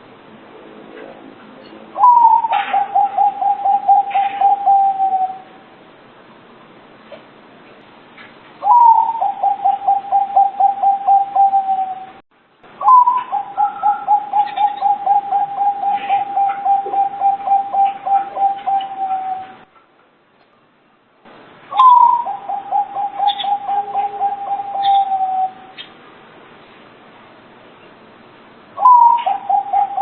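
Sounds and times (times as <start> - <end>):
dove cooing: 2.0 - 5.6, 8.6 - 12.2, 12.8 - 19.7, 21.7 - 25.8, 28.8 - 30.0.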